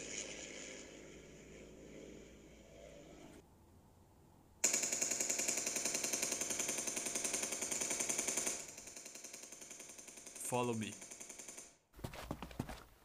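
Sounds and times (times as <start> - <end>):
rapid automatic gunfire: 4.6 - 11.7.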